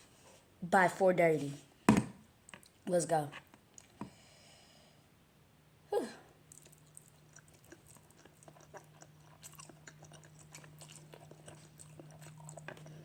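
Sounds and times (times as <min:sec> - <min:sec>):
close-up chewing noodles: 0:06.5 - 0:13.0.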